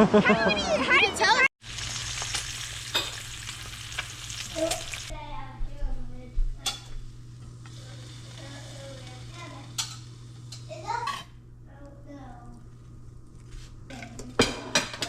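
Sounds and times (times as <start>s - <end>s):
food sizzling and frying: 1.6s - 15.0s.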